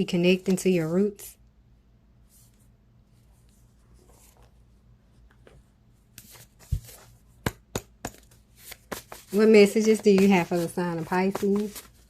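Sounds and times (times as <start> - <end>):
cards tapping and clicking: 6.2 - 12.0
cards rustling: 8.1 - 12.0.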